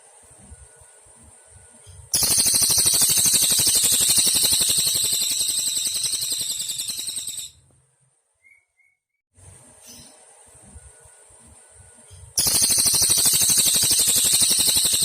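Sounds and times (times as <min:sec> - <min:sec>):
faint insect-like noise: 0:01.8 - 0:07.5, 0:12.4 - 0:15.0
faint bird chirps: 0:01.8 - 0:07.6, 0:12.1 - 0:15.0
songbird high-pitched trill: 0:02.2 - 0:07.6, 0:12.4 - 0:15.0.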